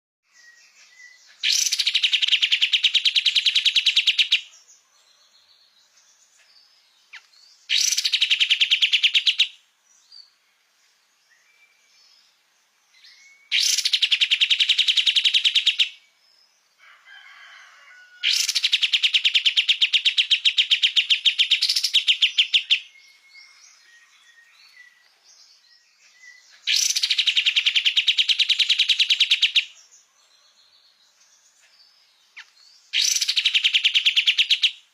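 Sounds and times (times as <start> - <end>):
faint bird chirps: 0.2 - 34.9
songbird fast trill: 0.7 - 4.5, 7.1 - 9.6, 13.0 - 16.0, 18.2 - 25.0, 26.1 - 29.7, 32.4 - 34.8.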